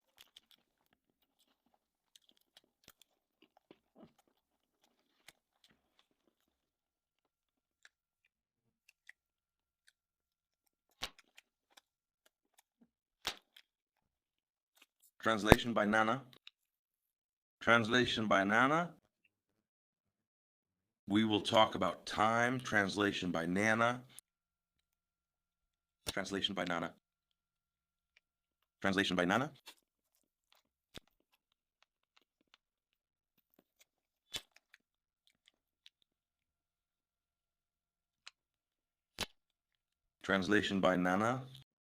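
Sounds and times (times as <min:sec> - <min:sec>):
crunching bites: 0:00.0 - 0:06.6, 0:10.6 - 0:13.8, 0:33.4 - 0:36.1, 0:39.1 - 0:39.6
faint clicks of eating: 0:00.0 - 0:14.1, 0:29.5 - 0:36.1.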